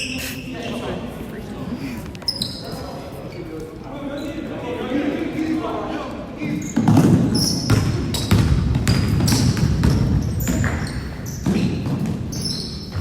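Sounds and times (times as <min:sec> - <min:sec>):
crowd murmur: 0:00.0 - 0:06.6
short high squeaks: 0:02.2 - 0:03.5
basketball bouncing on gym floor: 0:06.8 - 0:13.0.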